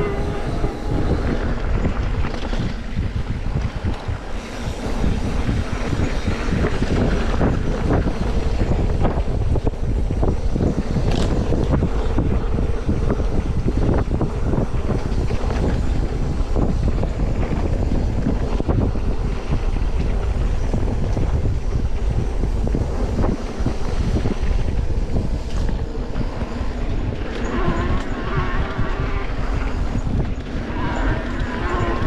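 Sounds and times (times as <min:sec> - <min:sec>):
faint wavering pitched sound: 0:00.0 - 0:02.1
wind buffeting microphone: 0:00.0 - 0:32.0.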